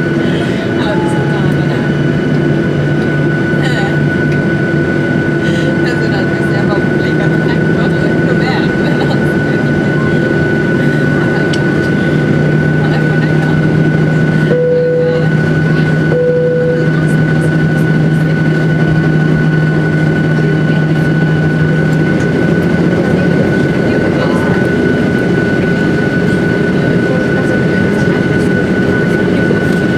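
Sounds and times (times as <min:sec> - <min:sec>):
jet engine cabin noise: 0:00.0 - 0:29.9.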